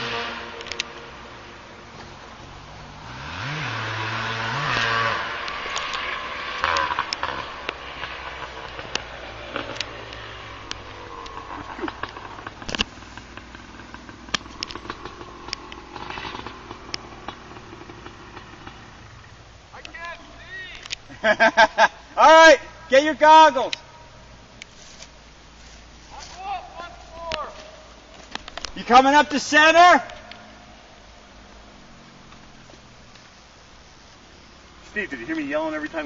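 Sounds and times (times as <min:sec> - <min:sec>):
dirt bike engine revving: 0:00.0 - 0:24.4, 0:28.7 - 0:33.0.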